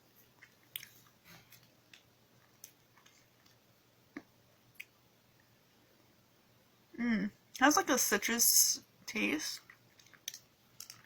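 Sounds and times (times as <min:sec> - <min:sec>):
candy chewing mouth clicks: 0:00.4 - 0:01.0, 0:09.6 - 0:11.0.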